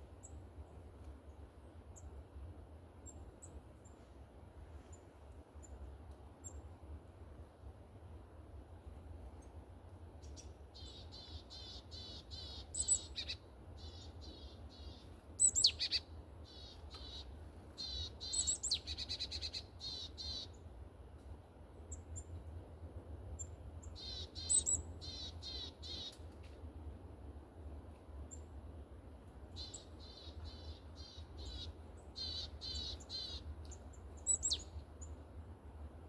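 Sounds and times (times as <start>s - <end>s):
small songbirds calling: 10.2s - 20.7s, 23.4s - 26.2s, 29.5s - 35.2s.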